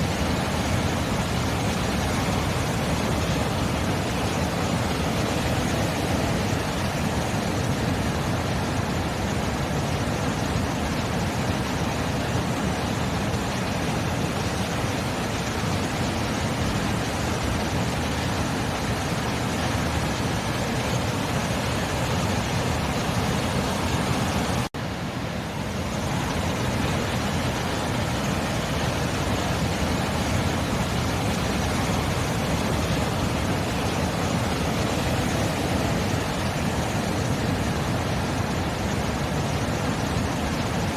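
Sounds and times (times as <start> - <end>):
waves breaking: 12.6 - 40.9.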